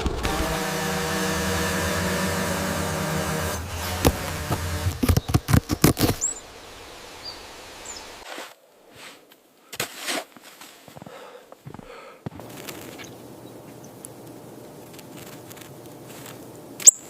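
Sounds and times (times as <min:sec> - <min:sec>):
motor-like hum: 0:00.0 - 0:06.0
sharp knocks and clunks: 0:00.0 - 0:06.2
bird chirps: 0:05.0 - 0:08.2, 0:16.8 - 0:17.0.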